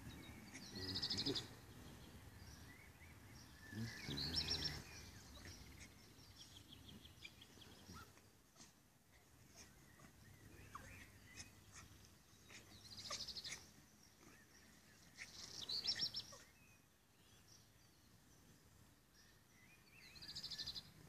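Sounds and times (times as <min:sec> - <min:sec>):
faint bird chirps: 0:00.0 - 0:21.0
songbird trilling: 0:02.5 - 0:08.2.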